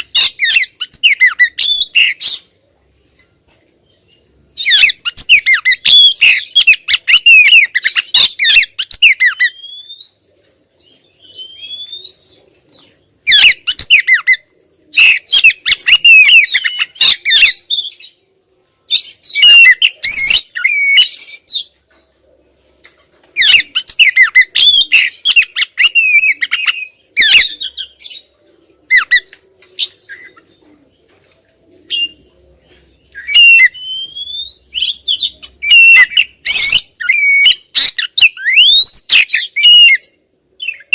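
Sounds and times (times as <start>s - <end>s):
bird whistling and chattering: 0.0s - 2.5s, 4.6s - 10.2s, 11.2s - 12.7s, 13.3s - 18.0s, 19.0s - 21.7s, 23.4s - 28.2s, 28.9s - 30.6s, 31.8s - 32.2s, 33.1s - 40.9s.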